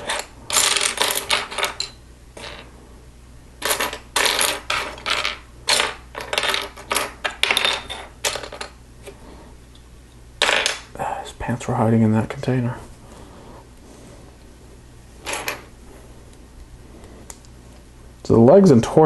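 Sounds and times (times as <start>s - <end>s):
plastic pieces clattering: 3.6s - 8.7s.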